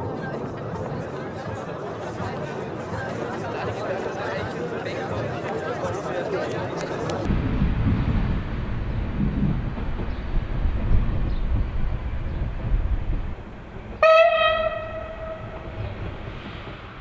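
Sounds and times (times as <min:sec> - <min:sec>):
train rumbling: 0:07.2 - 0:17.0
train horn blast: 0:14.0 - 0:15.9.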